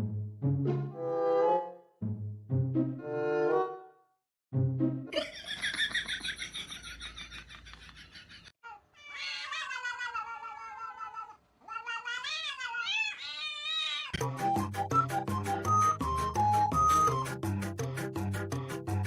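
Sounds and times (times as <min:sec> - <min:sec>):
music: 0:00.0 - 0:05.1, 0:14.2 - 0:19.0
cat yowling: 0:09.0 - 0:14.2.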